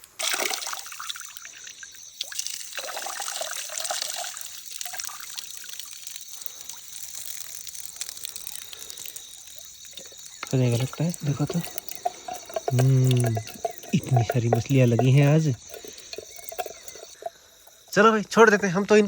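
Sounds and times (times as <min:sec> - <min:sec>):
water trickling and splashing: 0:00.0 - 0:18.8.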